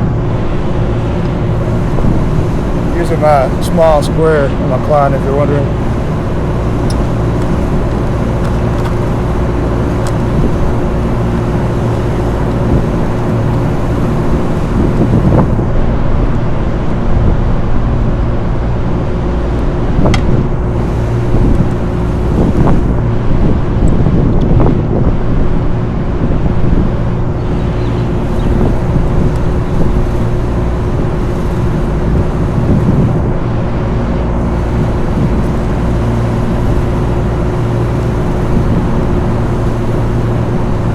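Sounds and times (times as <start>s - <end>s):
mechanical drone with hum: 0.0s - 40.9s.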